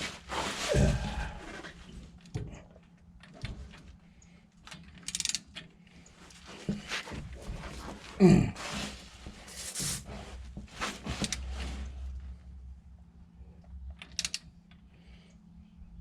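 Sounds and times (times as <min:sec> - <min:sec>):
torque wrench clicks: 0:04.9 - 0:05.5, 0:14.0 - 0:14.8.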